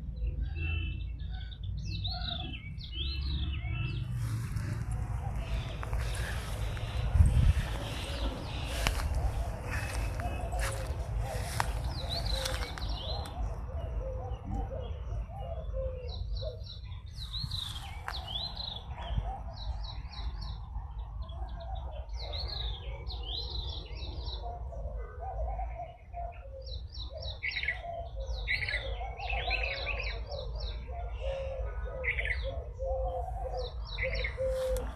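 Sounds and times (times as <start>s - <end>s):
birds chirping: 0.0s - 34.9s
lower wavering bird calls: 0.0s - 34.9s
steady low rumble: 4.0s - 15.4s.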